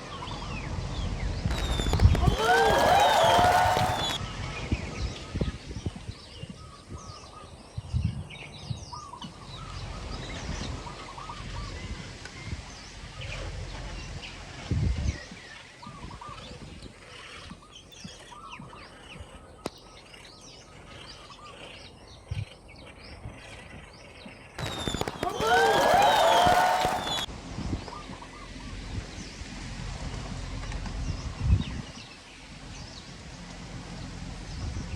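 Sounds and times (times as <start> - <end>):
birds chirping: 1.5 - 4.2, 17.5 - 27.3.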